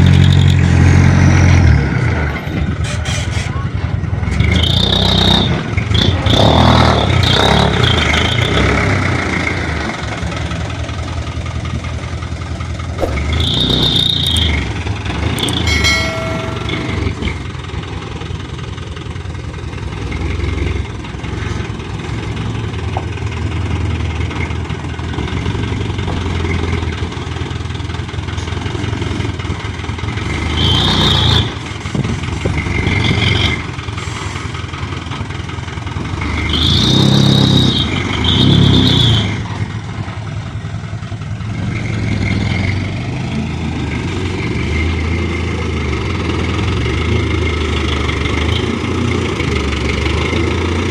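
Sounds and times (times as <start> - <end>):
diesel truck engine running: 0.0 - 50.9
high squeals: 13.1 - 14.7
short pitched tone: 15.4 - 17.4.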